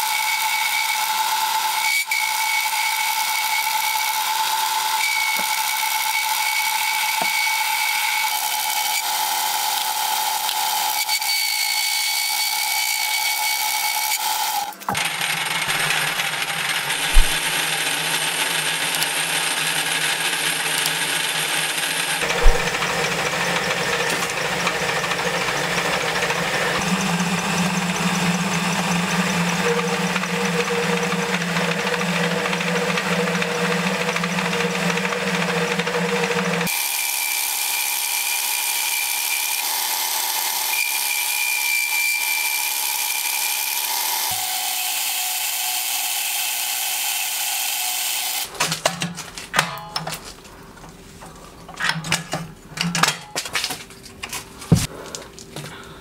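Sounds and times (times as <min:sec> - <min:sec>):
metal lathe running: 0:15.0 - 0:46.6
sharp knock: 0:17.1 - 0:17.5, 0:22.2 - 0:22.8.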